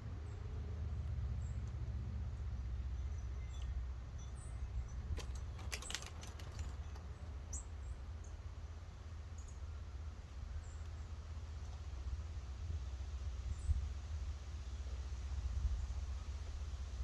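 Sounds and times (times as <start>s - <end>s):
faint high bird chirps: 2.8s - 5.1s
clicks and taps at bird feeder: 5.1s - 7.6s.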